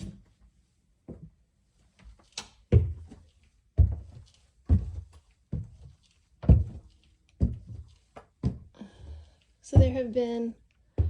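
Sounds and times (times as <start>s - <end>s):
heavy footsteps on stairs: 2.7s - 10.2s.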